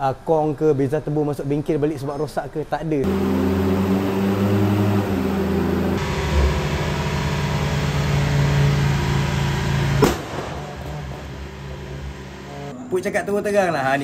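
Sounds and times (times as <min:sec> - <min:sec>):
car engine running: 0:03.1 - 0:12.7
sharp crack: 0:10.0 - 0:10.9.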